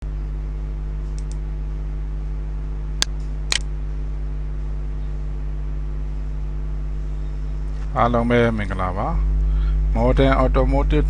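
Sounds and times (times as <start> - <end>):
steady low hum: 0.0 - 11.0
sharp clicks: 1.1 - 1.4, 3.0 - 3.7.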